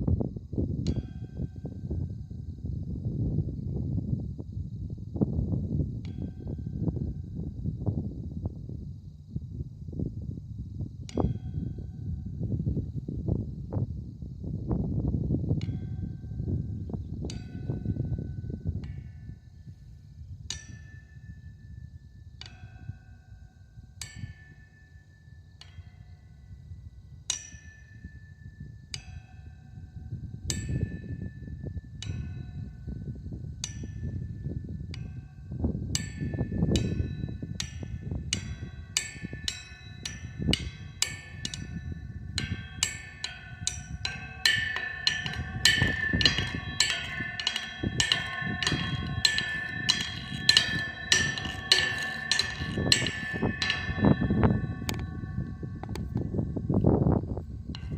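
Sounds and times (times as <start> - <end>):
tuned drum ringing notes: 27.3 - 57.9
low rumbling noise: 38.0 - 57.9.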